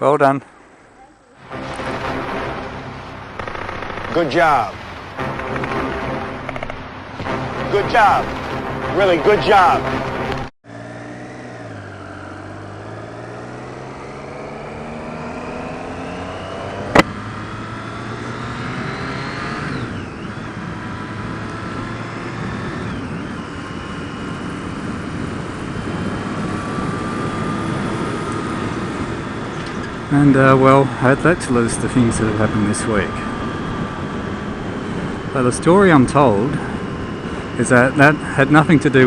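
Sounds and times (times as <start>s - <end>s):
motorcycle engine running: 3.3s - 4.3s, 5.1s - 7.6s.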